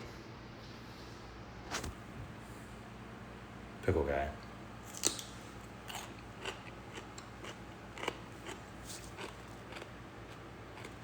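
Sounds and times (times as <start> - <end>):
crunching and chewing pickle: 4.8 - 11.0.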